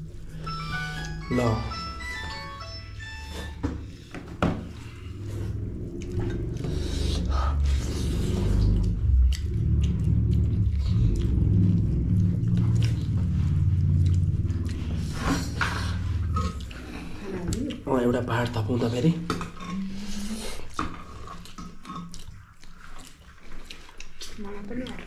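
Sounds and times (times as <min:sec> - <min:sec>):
person chewing food: 0:03.3 - 0:18.5, 0:19.5 - 0:25.0
low rumble: 0:03.8 - 0:19.0.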